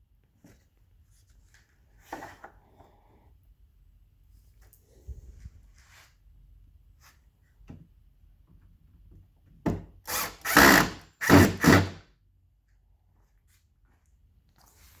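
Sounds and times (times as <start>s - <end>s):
power drill bursts: 10.1s - 12.0s.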